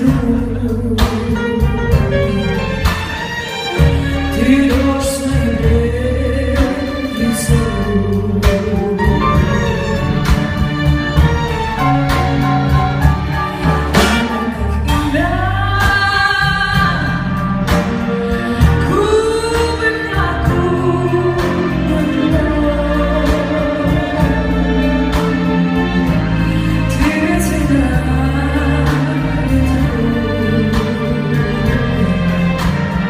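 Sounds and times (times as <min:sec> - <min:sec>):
band accompaniment: 0:00.0 - 0:33.0
drum hits: 0:08.4 - 0:14.6
person singing ballad: 0:14.2 - 0:33.0.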